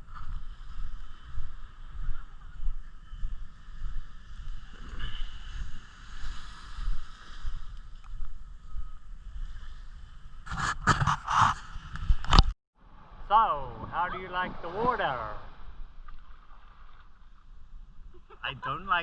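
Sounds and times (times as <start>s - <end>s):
muffled surf rumbling underwater: 13.2s - 17.2s.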